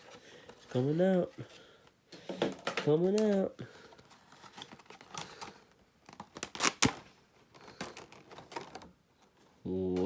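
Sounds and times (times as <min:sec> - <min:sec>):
packaging rustling and clicking: 0:02.4 - 0:09.0.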